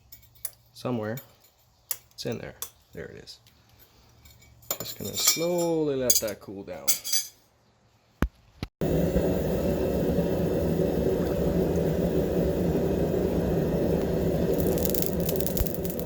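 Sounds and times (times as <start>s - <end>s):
hot steel quenched in oil bubbling: 10.8s - 16.0s
oil crackling: 13.5s - 16.0s.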